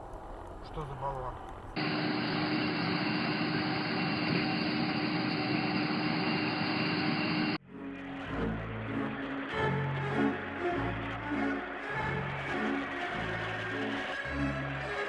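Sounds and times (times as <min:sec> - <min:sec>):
vehicle engine humming: 0:01.6 - 0:07.6
music: 0:07.6 - 0:15.0.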